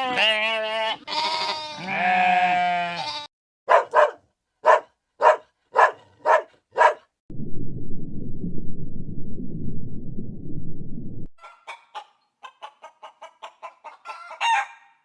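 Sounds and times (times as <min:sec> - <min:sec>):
goat bleating: 0:00.0 - 0:03.3
animal barking: 0:03.7 - 0:07.1.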